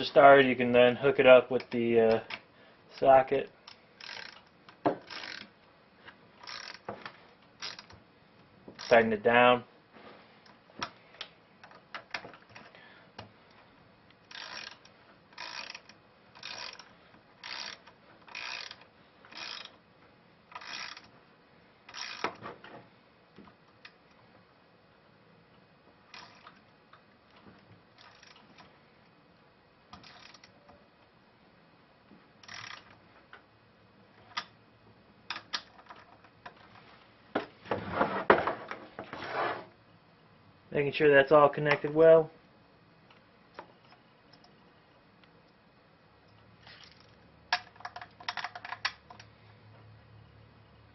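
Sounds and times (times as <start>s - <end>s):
socket ratchet clicking: 3.7s - 5.5s, 6.4s - 6.9s, 7.6s - 8.0s, 14.3s - 19.8s, 20.5s - 21.1s, 21.9s - 22.4s, 30.0s - 30.6s, 32.4s - 32.9s
tool handling noises: 35.3s - 39.7s.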